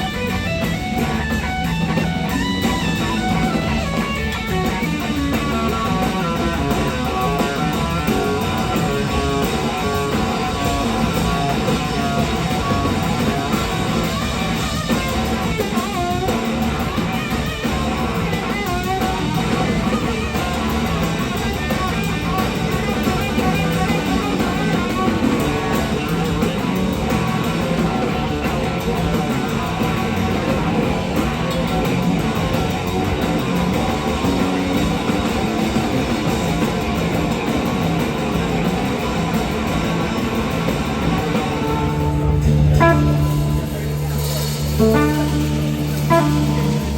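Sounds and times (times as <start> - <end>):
live rock band playing: 0.0 - 46.9
electric slide guitar solo: 40.9 - 46.9.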